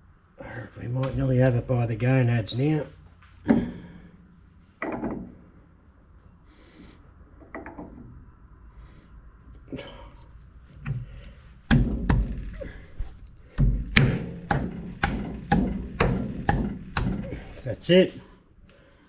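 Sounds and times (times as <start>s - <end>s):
metal knocks and thuds: 3.4s - 5.4s, 10.8s - 17.7s.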